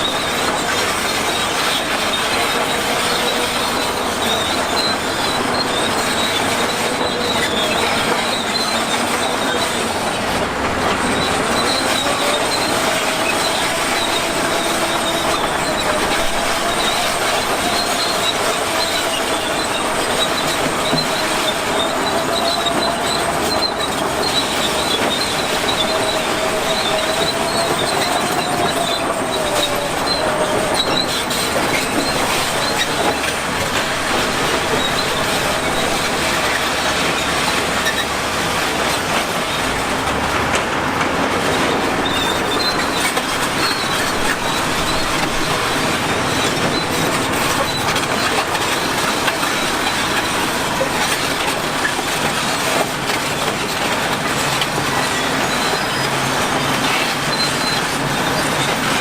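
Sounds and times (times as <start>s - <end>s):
bulldozer running: 0.0s - 59.0s
squealing crawler tracks: 0.0s - 59.0s.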